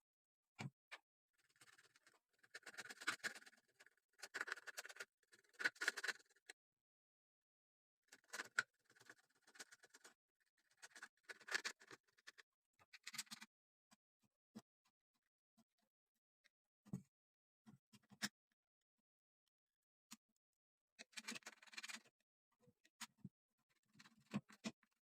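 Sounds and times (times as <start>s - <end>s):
scratching and rubbing: 1.5s - 6.4s, 8.1s - 12.4s, 21.1s - 22.0s.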